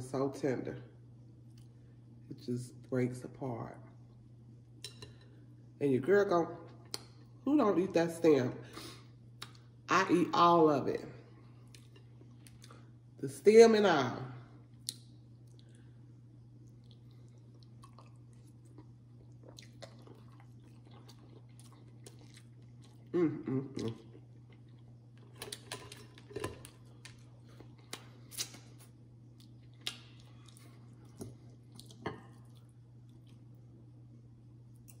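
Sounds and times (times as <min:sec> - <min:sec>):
steady low hum: 0:00.0 - 0:35.0
person chewing food: 0:11.4 - 0:13.0, 0:14.6 - 0:33.6.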